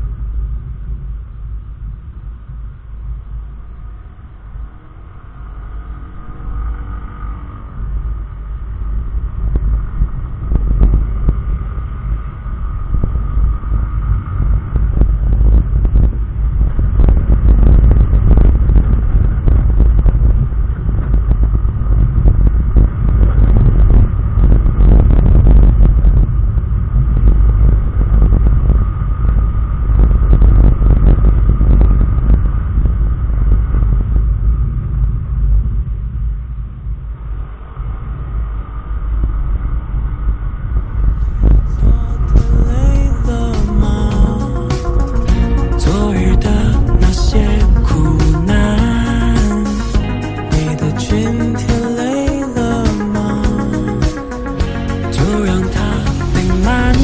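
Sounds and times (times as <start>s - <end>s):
wind buffeting microphone: 7.7s - 44.4s.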